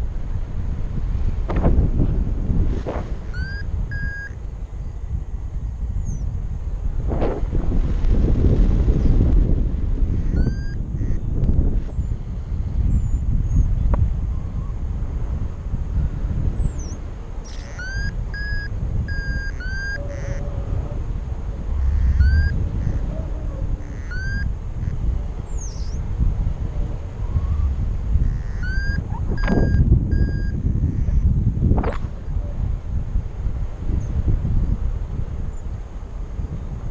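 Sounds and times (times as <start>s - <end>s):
wind buffeting microphone: 0.0s - 36.9s
short high beeps: 3.3s - 4.4s, 10.4s - 10.8s, 17.5s - 20.0s, 28.6s - 30.6s.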